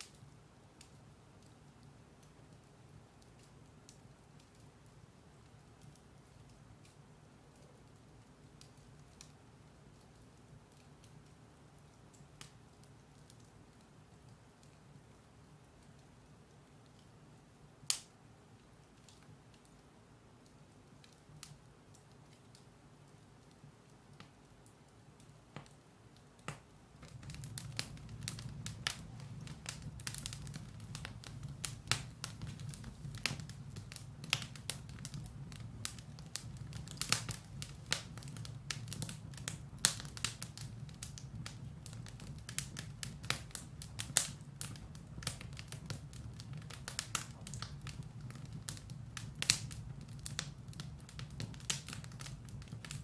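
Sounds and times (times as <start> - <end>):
firewood crackling and popping: 0.0 - 53.0
low steady rumble: 26.8 - 51.3.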